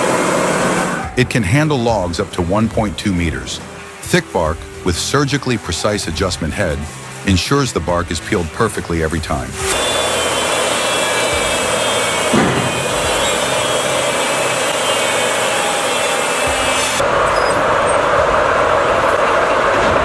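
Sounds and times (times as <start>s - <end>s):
debarking machine grinding log: 0.0s - 20.0s
steady machine noise: 8.2s - 20.0s.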